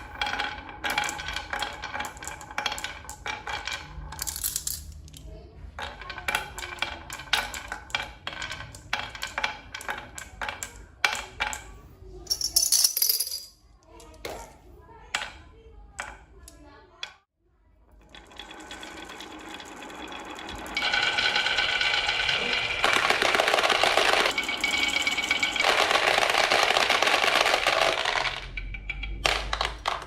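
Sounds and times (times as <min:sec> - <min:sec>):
small hard objects clinking: 0:00.0 - 0:05.2, 0:12.3 - 0:13.5, 0:18.0 - 0:30.0.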